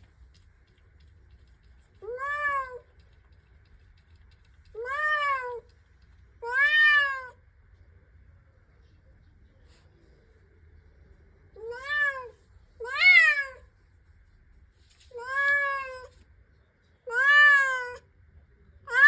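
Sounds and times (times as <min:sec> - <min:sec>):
cat meowing: 0:17.1 - 0:18.0.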